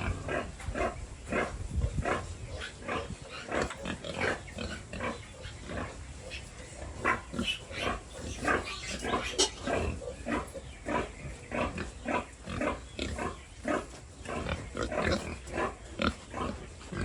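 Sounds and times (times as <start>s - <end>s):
pigs grunting: 0.0s - 17.0s.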